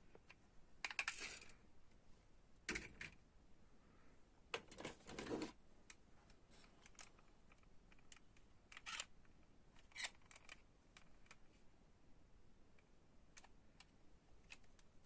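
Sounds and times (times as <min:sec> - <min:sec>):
toy cars and packaging clicking: 0:00.3 - 0:01.6, 0:06.8 - 0:11.4.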